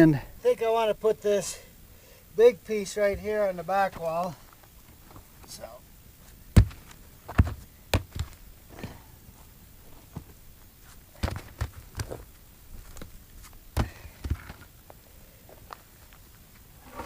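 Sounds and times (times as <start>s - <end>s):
footsteps on rocky ground: 3.1s - 5.6s, 6.2s - 8.4s, 9.4s - 16.7s.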